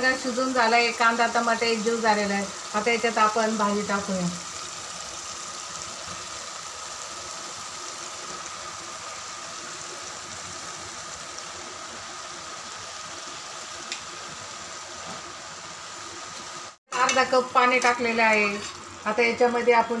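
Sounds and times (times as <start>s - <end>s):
masala sizzling in a pan: 0.0s - 20.0s.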